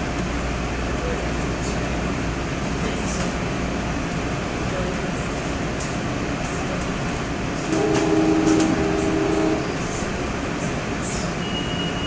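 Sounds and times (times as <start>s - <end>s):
train rumbling: 0.0s - 12.0s
train horn blasts: 7.6s - 10.0s.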